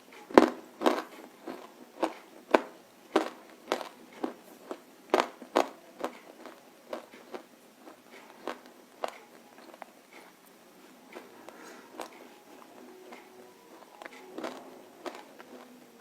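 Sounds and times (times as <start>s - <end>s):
crunching bites and chews: 0.4s - 9.9s, 14.0s - 15.8s.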